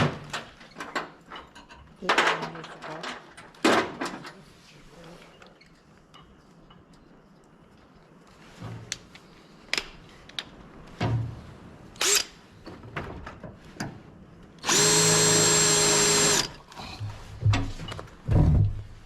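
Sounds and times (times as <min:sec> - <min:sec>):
electric drill running: 0:12.0 - 0:12.3, 0:14.6 - 0:16.6.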